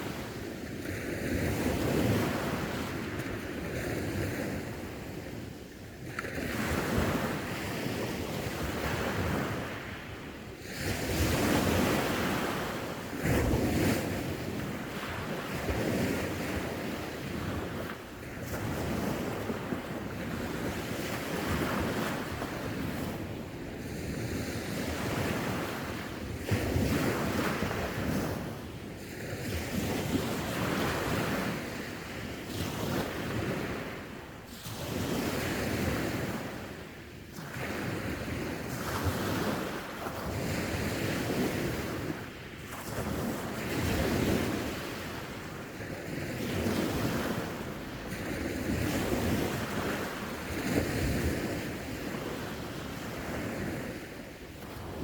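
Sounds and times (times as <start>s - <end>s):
sea waves breaking on shore: 0.0s - 55.0s
wind buffeting microphone: 0.0s - 55.0s.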